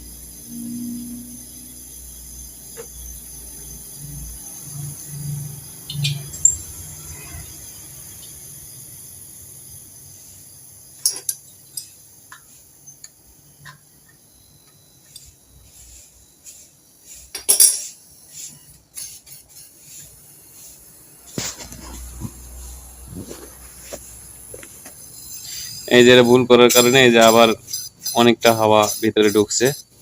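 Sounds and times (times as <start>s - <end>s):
metallic clicks of tools: 11.0s - 12.4s.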